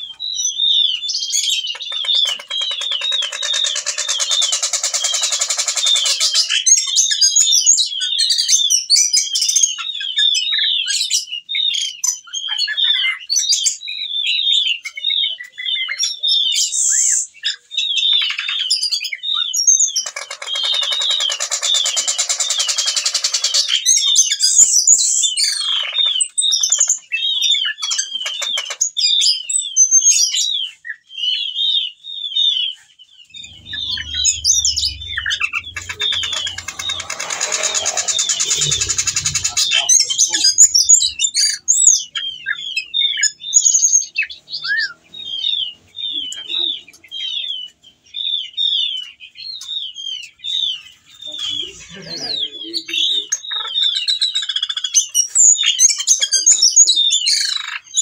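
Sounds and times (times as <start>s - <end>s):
low rumble: 33.3s - 41.6s
thrush singing: 33.3s - 42.7s
harsh hissing: 33.8s - 41.1s.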